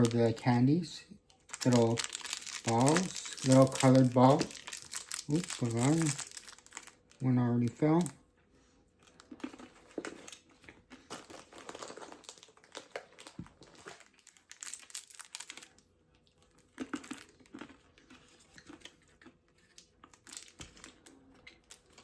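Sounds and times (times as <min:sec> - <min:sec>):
plastic packaging crinkling: 0:00.0 - 0:00.6, 0:01.3 - 0:08.2, 0:09.0 - 0:15.9, 0:19.8 - 0:22.0.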